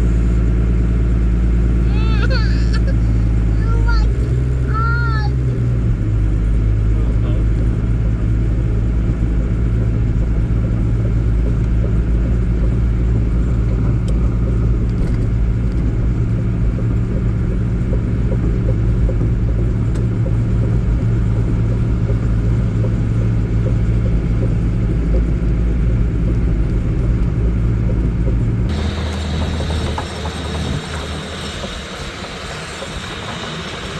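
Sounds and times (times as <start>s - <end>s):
vehicle engine running: 0.0s - 33.9s.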